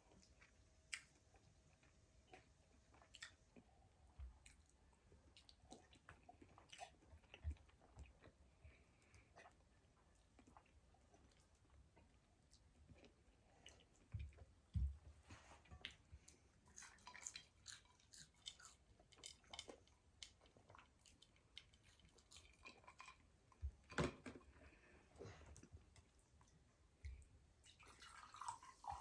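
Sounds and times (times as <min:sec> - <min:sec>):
person chewing food: 0:00.1 - 0:14.5, 0:15.6 - 0:23.6.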